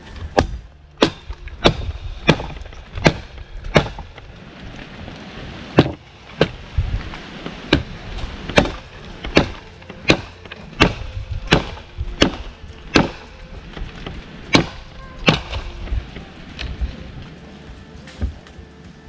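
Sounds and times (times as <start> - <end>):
blade chopping into tree limb: 0.2 - 4.2, 7.6 - 13.3, 14.5 - 15.7.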